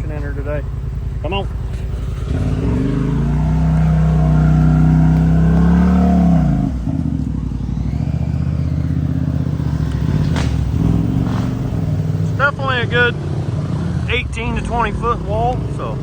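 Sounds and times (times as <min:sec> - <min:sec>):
utility vehicle engine revving: 0:00.0 - 0:16.0.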